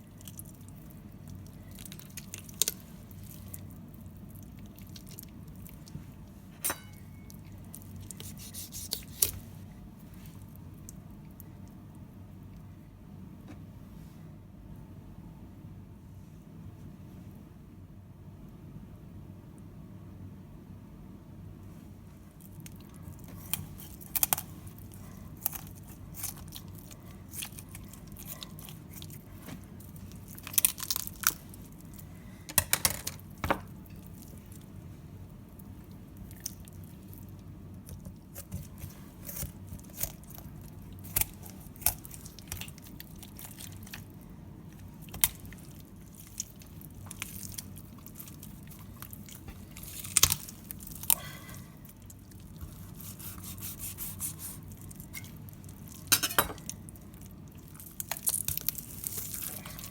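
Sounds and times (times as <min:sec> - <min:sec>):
steady low hum: 0:00.0 - 0:59.9
knife crunching through chicken: 0:07.7 - 0:09.4, 0:22.5 - 0:32.1, 0:36.2 - 0:44.2, 0:44.8 - 0:59.9.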